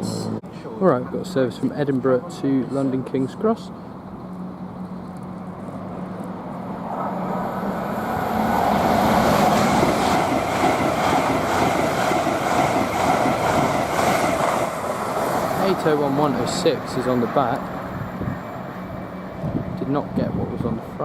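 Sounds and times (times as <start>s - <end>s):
electric train passing: 0.0s - 21.0s.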